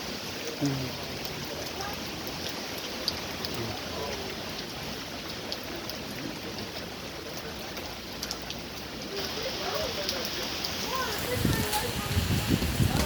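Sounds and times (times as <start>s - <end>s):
heavy rain hiss: 0.0s - 4.7s, 8.8s - 13.0s
raindrops ticking on surfaces: 0.0s - 13.0s.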